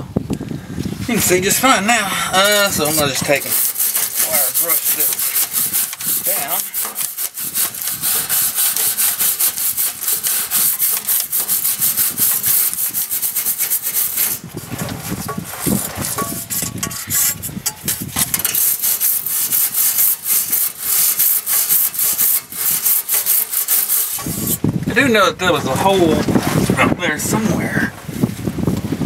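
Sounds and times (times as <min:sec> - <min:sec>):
wire brush scrubbing metal: 0:01.1 - 0:25.1.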